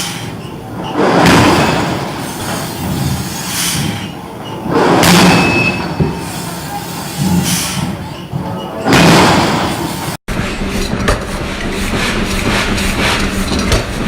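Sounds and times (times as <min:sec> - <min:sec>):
machinery din: 0:08.4 - 0:14.0.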